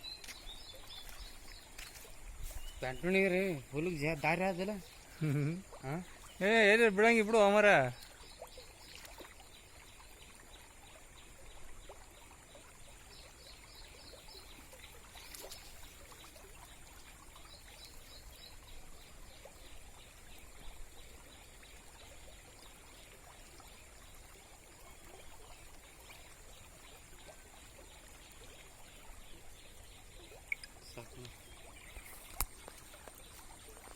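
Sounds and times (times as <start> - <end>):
rainwater trickling: 0.0 - 33.9.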